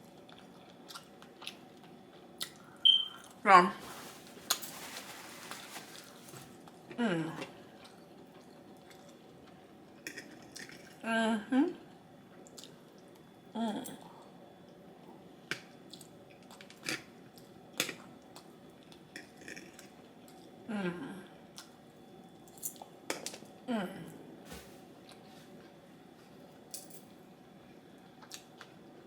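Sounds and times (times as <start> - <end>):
chewing and lip smacks: 12.4 - 12.8.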